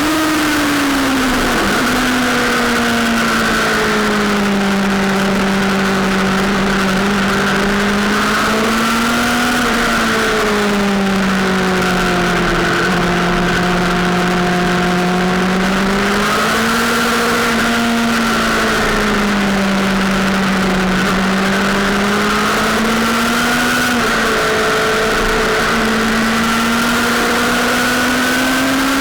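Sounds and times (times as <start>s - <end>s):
steady rushing noise: 0.0s - 17.6s
motorcycle engine at high revs: 0.0s - 29.0s.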